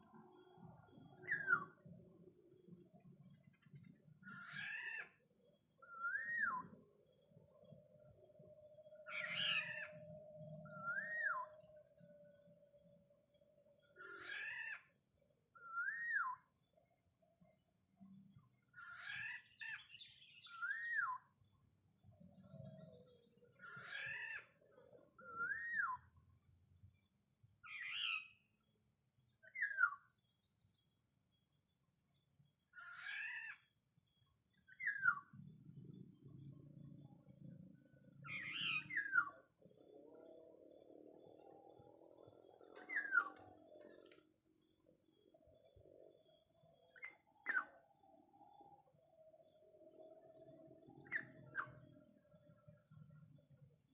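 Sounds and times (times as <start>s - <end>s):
oriole whistled calls: 0.1s - 2.0s, 5.8s - 6.9s, 8.9s - 12.0s, 15.6s - 16.5s, 23.4s - 26.2s, 27.6s - 28.4s, 34.6s - 35.4s, 38.1s - 40.8s, 42.6s - 44.1s.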